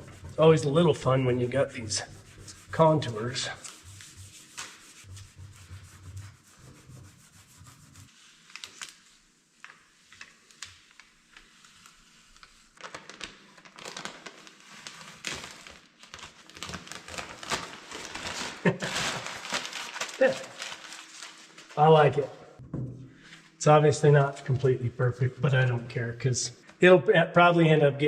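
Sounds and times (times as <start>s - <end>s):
sticker film rubbed and crinkling: 0.0s - 22.3s.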